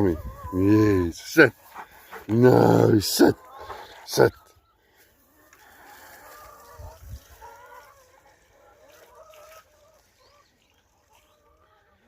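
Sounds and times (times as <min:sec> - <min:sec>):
chickens clucking softly: 0:00.0 - 0:12.0.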